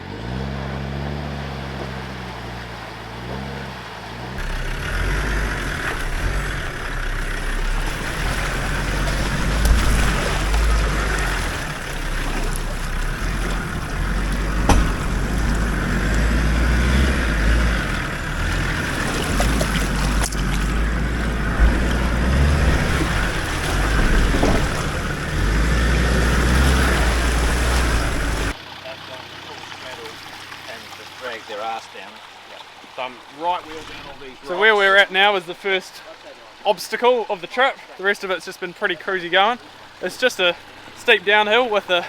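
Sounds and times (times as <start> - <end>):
vehicle driving on rough track: 0.0 - 42.0
sharp knocks from bumpy ground: 8.9 - 17.2, 18.5 - 25.4.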